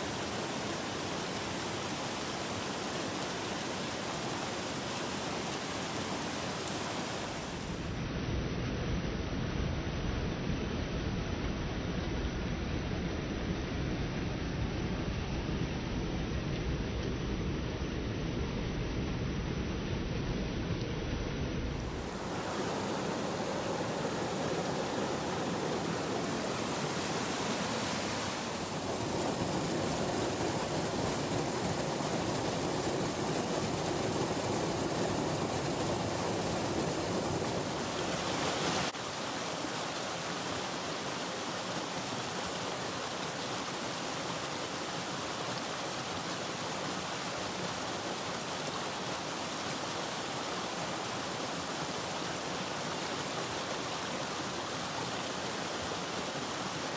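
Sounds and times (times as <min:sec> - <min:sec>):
mountain stream rushing over rocks: 0:00.0 - 0:08.0, 0:21.7 - 0:56.9.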